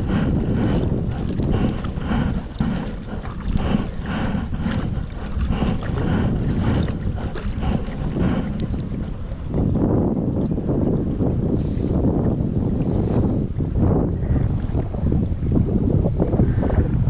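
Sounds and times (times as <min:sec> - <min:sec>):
paddle strokes splashing: 0:00.0 - 0:09.7
wind buffeting microphone: 0:00.0 - 0:17.0.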